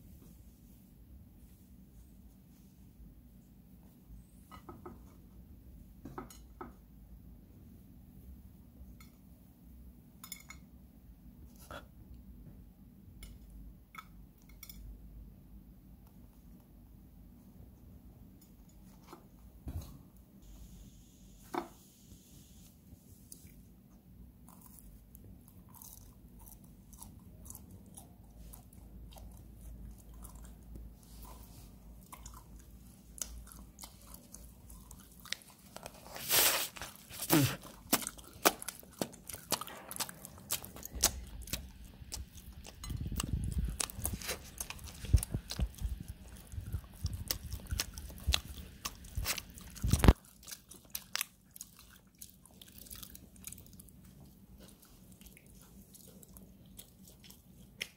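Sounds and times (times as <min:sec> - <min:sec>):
chewing and crunching: 0:24.4 - 0:57.9.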